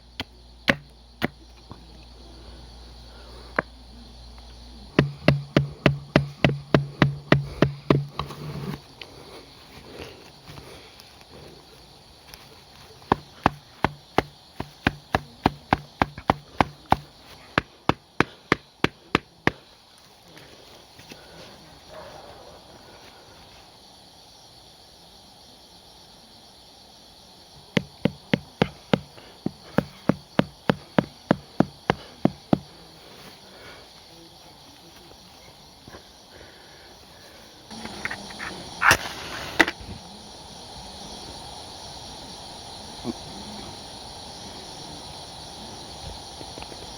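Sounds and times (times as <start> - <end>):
hatchet striking wood: 0.2 - 1.4, 4.9 - 8.4, 13.1 - 19.3, 27.8 - 32.6.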